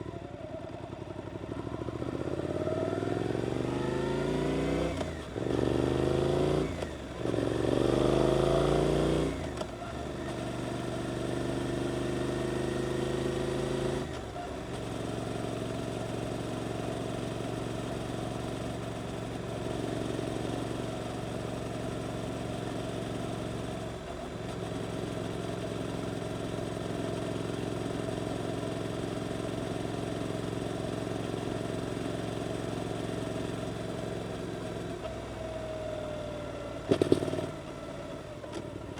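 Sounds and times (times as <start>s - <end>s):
motorcycle engine revving: 36.9s - 37.7s.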